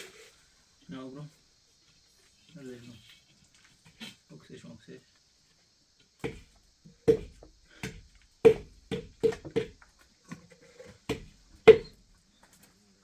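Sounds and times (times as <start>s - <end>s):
sharp hollow knocks: 6.2s - 9.8s, 11.1s - 12.0s.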